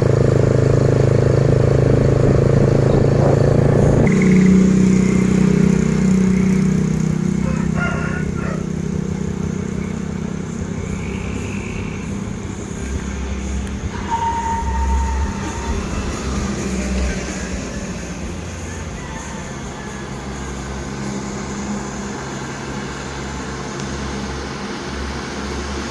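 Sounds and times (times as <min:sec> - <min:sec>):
truck engine passing: 0:00.0 - 0:25.9
steady higher tone: 0:08.9 - 0:25.5.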